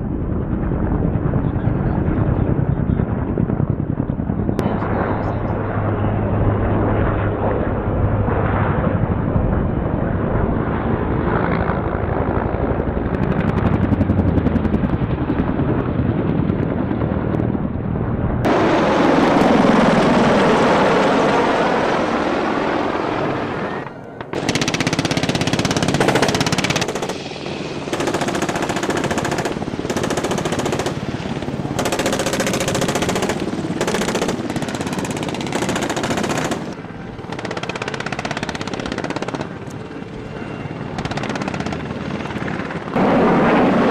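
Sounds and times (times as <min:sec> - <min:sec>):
helicopter rotor and engine: 0:00.0 - 0:43.9
rapid automatic gunfire: 0:24.4 - 0:27.2, 0:27.9 - 0:31.0, 0:31.8 - 0:39.5.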